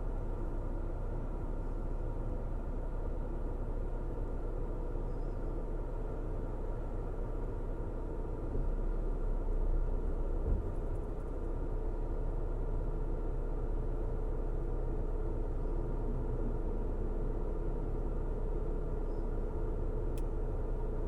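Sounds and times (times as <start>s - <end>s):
car road and engine rumble: 0.0s - 21.0s
short low thump: 10.4s - 11.0s.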